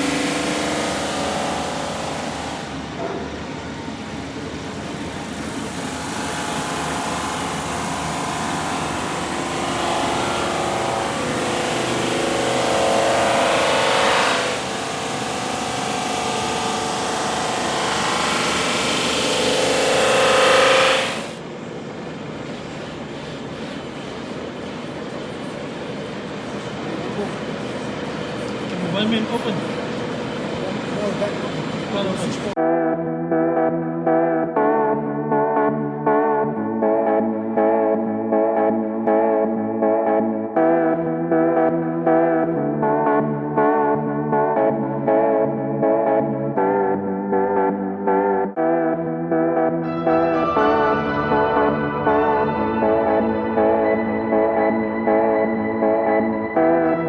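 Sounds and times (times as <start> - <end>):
drum sander running: 0.0 - 21.4
board being sanded: 6.0 - 21.4.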